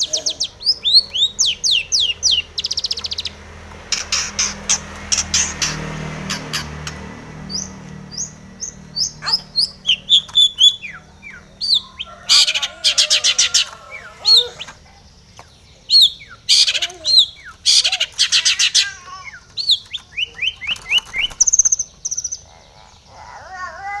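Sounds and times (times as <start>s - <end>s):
bird whistled song: 0.0s - 3.4s, 7.5s - 14.8s, 15.9s - 22.4s
bird harsh rasping chatter: 0.0s - 24.0s.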